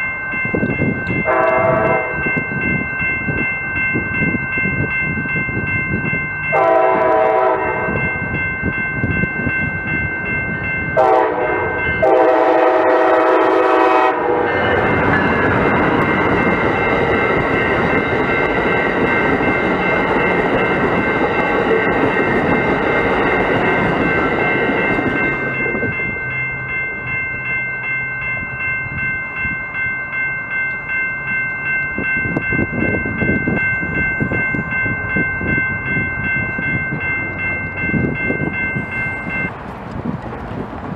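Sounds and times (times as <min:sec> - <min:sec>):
high ringing tone: 0:00.0 - 0:39.6
train wheels on rails: 0:00.0 - 0:40.9
train horn blasts: 0:01.2 - 0:02.2, 0:06.5 - 0:08.0, 0:11.0 - 0:14.9.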